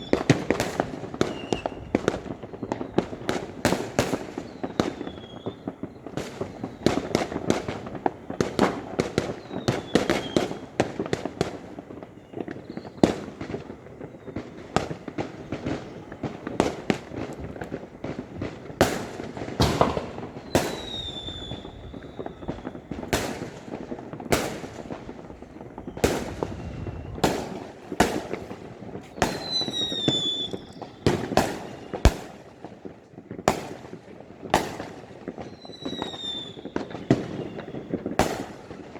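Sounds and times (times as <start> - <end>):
distant fireworks rumble: 0.0 - 38.9
fireworks sharp bangs: 0.0 - 38.9
high falling whistles: 20.3 - 22.8, 25.8 - 27.5.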